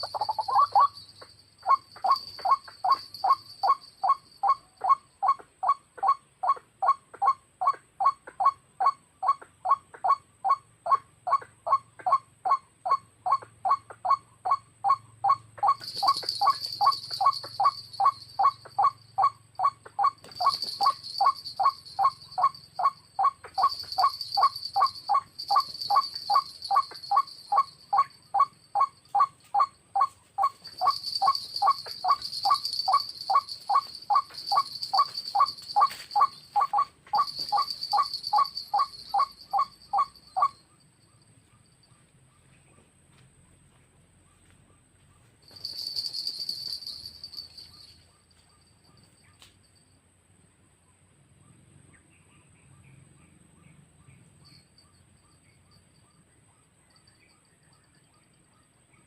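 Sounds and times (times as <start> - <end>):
waterhen calling: 0.0 - 1.0.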